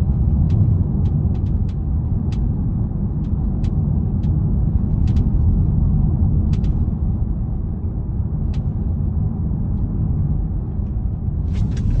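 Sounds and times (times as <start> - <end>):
tyres rumbling on rough road: 0.0 - 12.0
sharp clicks from car: 0.4 - 2.6, 3.2 - 5.5, 6.5 - 6.8, 11.5 - 12.0.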